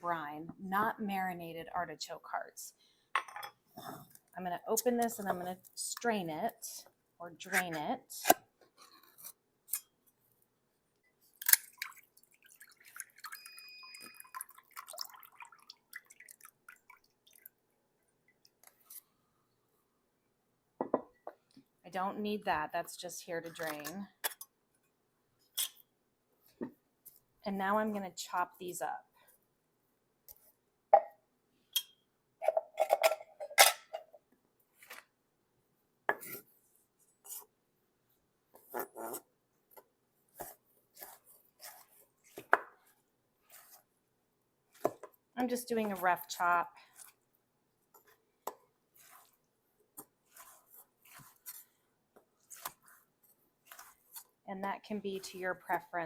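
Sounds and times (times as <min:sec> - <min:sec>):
liquid dripping: 0:11.6 - 0:17.6.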